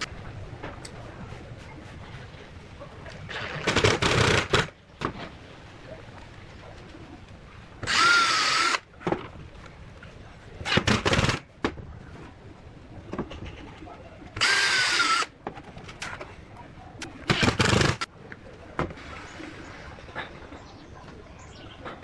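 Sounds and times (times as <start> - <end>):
power drill bursts: 7.9 - 8.8, 14.4 - 15.3.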